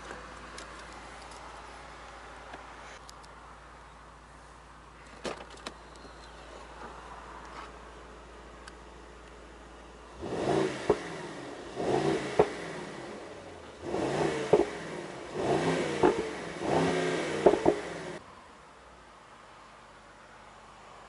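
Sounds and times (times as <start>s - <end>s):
car engine revving: 10.1s - 18.2s
sharp exhaust cracks: 10.6s - 13.2s.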